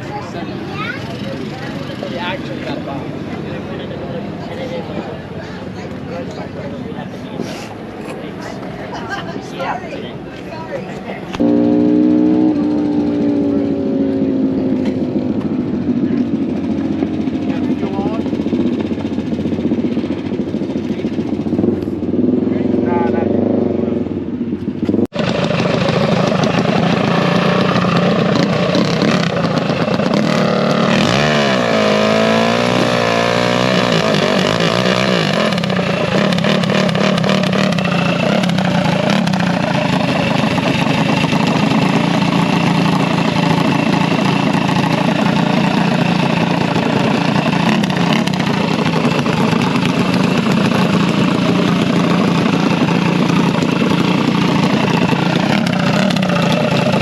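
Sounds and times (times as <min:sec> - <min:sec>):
minibike engines running: 0:00.0 - 0:11.4, 0:24.8 - 0:57.0.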